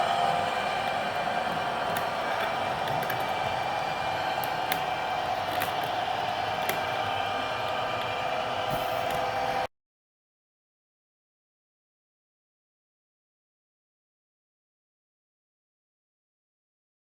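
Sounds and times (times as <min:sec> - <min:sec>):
model locomotive humming: 0:00.0 - 0:09.7.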